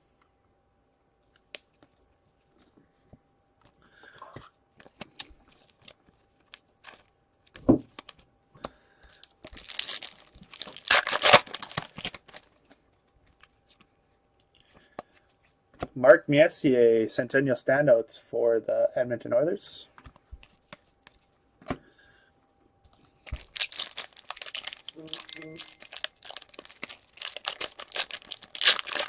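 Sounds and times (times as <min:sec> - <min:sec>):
foil wrapper tearing and crinkling: 0:09.4 - 0:12.7, 0:23.2 - 0:29.0.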